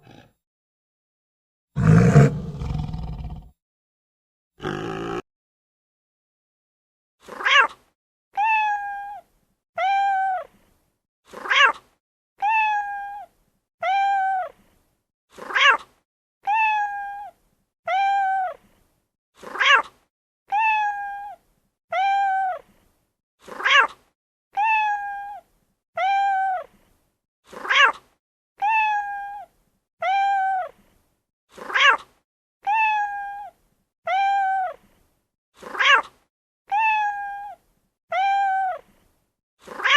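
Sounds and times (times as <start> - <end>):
cat meowing: 7.3 - 7.8, 8.4 - 10.5, 11.4 - 11.8, 12.4 - 14.5, 15.5 - 18.6, 19.5 - 19.9, 20.5 - 22.6, 24.6 - 25.4, 26.0 - 26.7, 28.6 - 30.7, 31.7 - 34.8, 35.7 - 36.1, 36.7 - 38.8.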